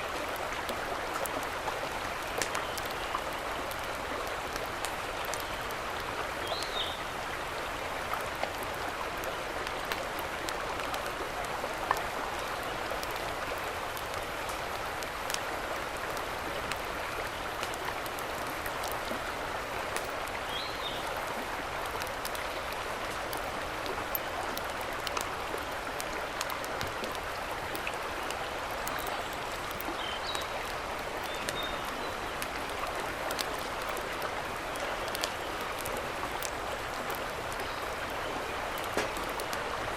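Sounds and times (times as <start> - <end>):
mountain stream rushing: 0.0 - 39.9
faint clicks: 21.8 - 39.6.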